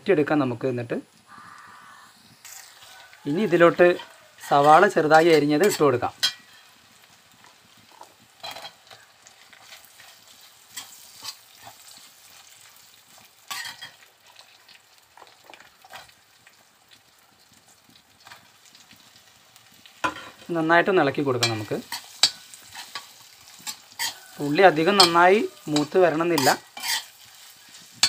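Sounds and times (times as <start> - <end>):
food sizzling in hot oil: 0.0 - 28.0
spatula scraping a wok: 2.4 - 14.6, 21.4 - 28.0.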